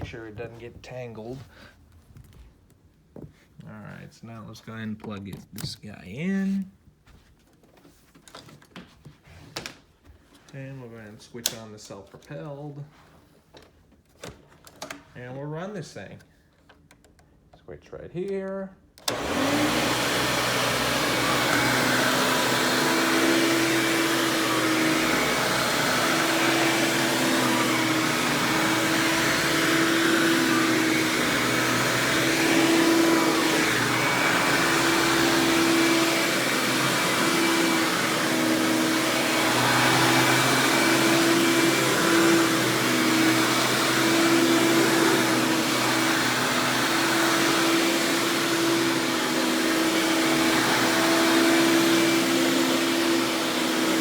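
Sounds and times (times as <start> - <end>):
upright vacuum running: 19.0 - 54.0.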